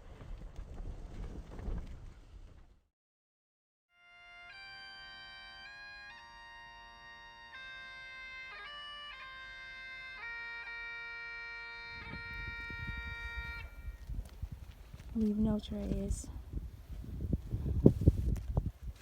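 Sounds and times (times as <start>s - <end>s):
bagpipe music: 3.9s - 14.1s
low wind rumble: 11.9s - 19.0s.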